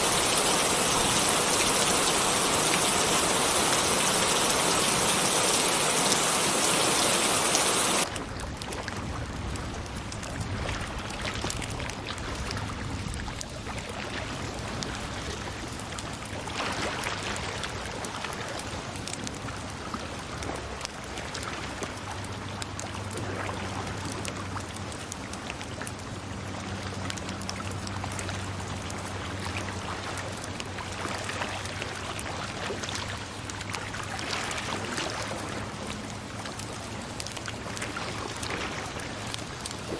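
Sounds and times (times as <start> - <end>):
loud rush of water: 0.0 - 8.3, 26.1 - 39.9
running water with splashes: 0.0 - 39.9.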